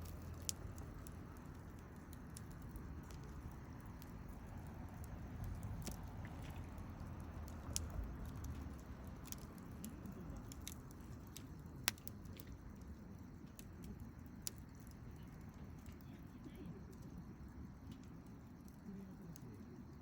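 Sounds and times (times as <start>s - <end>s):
sharp pops of burning wood: 0.0s - 15.9s
campfire crackling: 0.0s - 20.0s.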